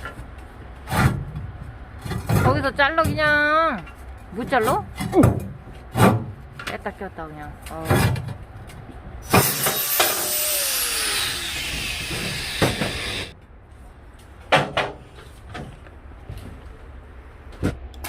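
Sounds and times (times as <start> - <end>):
angle grinder cutting steel: 9.2 - 13.3.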